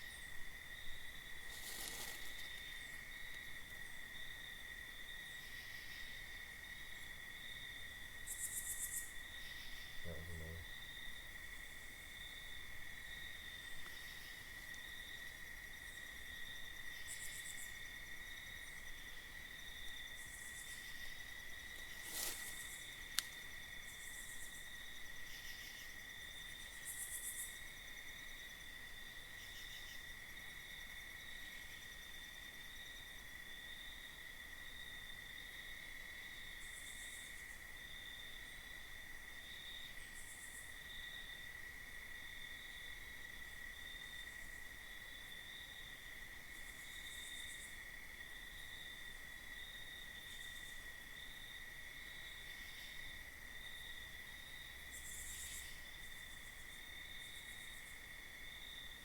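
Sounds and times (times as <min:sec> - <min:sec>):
crickets trilling: 0:00.0 - 0:59.0
buzzy insect calls: 0:00.9 - 0:04.1, 0:19.8 - 0:27.6, 0:54.6 - 0:58.1.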